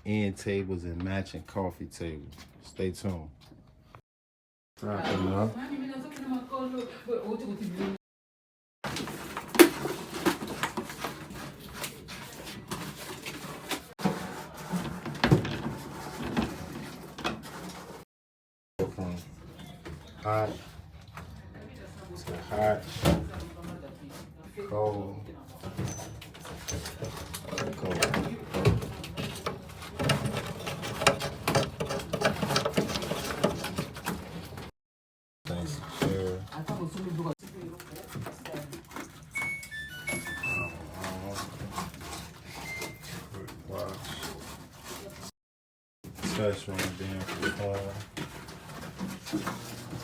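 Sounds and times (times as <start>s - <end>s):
knocks and clunks of handling: 8.9s - 18.0s, 25.6s - 34.7s, 46.1s - 50.0s
hoses and metal fittings rattling: 25.8s - 34.7s.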